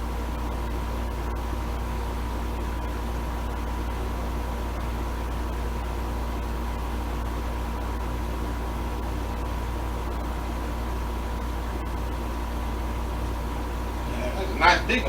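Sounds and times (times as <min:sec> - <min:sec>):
low electrical hum with hiss: 0:12.7 - 0:15.0.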